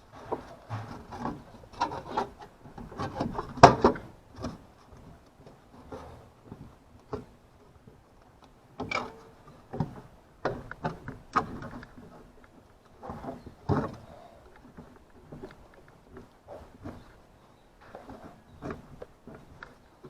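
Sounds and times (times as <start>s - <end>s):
tools and parts knocking and clanking: 8.8s - 11.5s.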